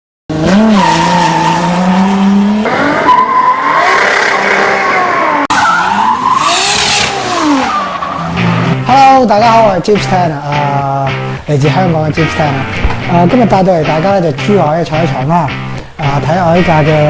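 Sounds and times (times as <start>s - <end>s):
turbocharged car engine revving: 0.3s - 8.9s.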